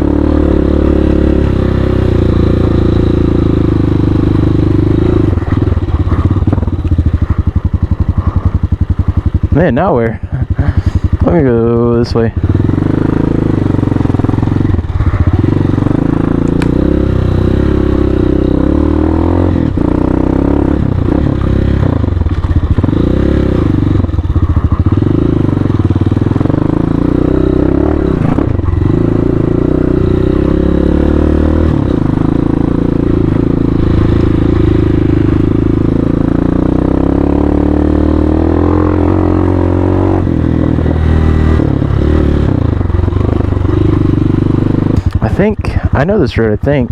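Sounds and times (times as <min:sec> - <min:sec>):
motorcycle engine revving: 0:00.0 - 0:46.9
knocks and clatter from bike: 0:21.2 - 0:23.1, 0:44.9 - 0:45.2.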